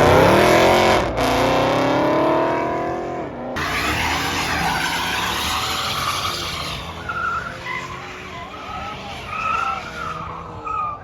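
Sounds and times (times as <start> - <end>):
car tires spinning and squealing: 3.6 - 11.0.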